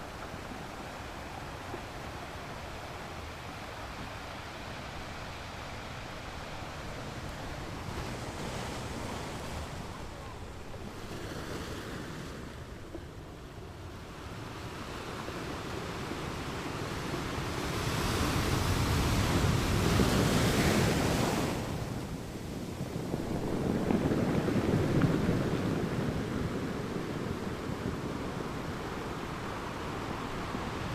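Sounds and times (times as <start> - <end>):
wind buffeting microphone: 15.5 - 30.9.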